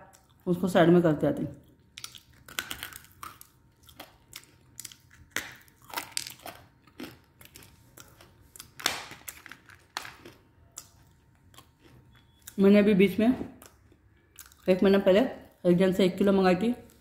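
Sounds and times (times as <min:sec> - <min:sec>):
person crunching clay chunks: 0:02.0 - 0:10.9.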